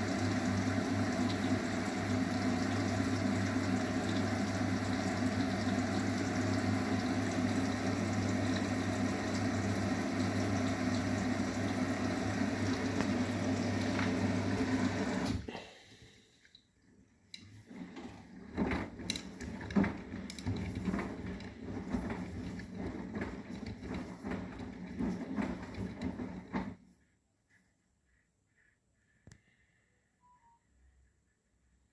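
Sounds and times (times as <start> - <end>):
water rushing into drum: 0.0 - 15.4
washing machine hum: 0.0 - 27.0.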